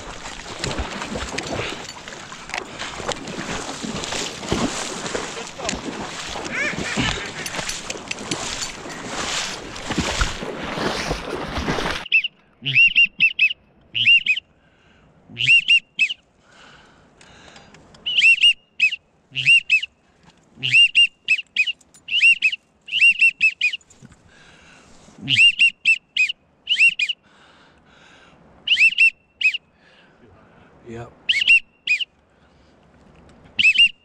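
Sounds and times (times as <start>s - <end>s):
duck whistle call peeps: 12.0s - 14.4s, 15.4s - 16.2s, 18.0s - 19.9s, 20.6s - 23.8s, 25.2s - 27.2s, 28.7s - 29.6s, 31.3s - 32.1s, 33.6s - 34.0s.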